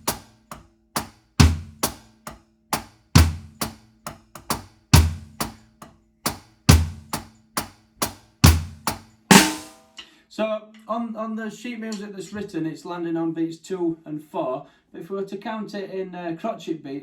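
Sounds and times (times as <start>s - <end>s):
drum kit playing reggae groove: 0.0s - 0.4s, 1.0s - 2.1s, 2.8s - 5.6s, 6.3s - 7.3s, 8.0s - 9.8s.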